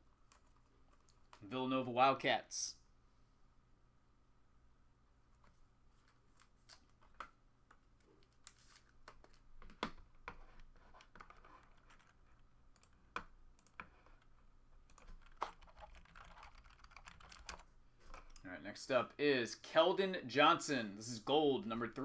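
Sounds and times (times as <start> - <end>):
cards being handled and shuffled: 5.4 - 16.5.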